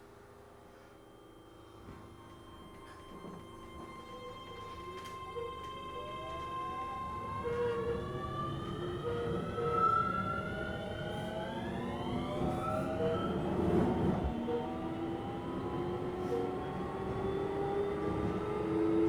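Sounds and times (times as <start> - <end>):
wheels rumbling on rail: 3.1 - 19.0.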